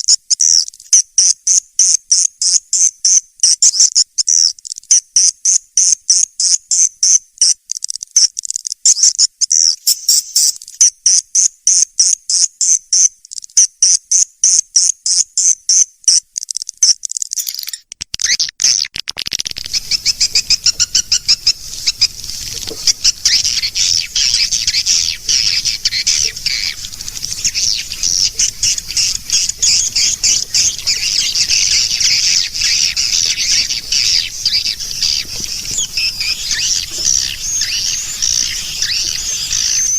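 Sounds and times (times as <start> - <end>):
continuous high twittering: 0.0 - 18.4, 19.2 - 39.9
repeated high bird chirps: 0.0 - 39.9
faint hiss: 19.5 - 39.9.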